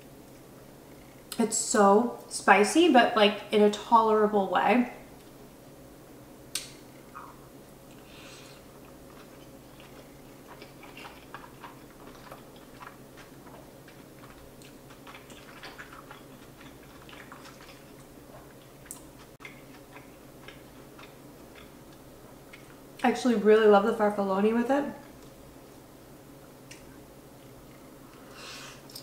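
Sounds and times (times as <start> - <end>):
person chewing pasta: 7.1 - 23.0.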